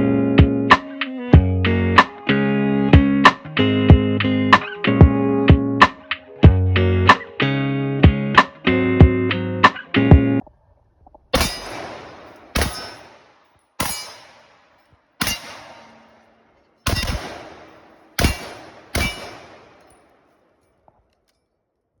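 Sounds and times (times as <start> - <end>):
rifle shots with echoing tail: 11.4 - 20.7.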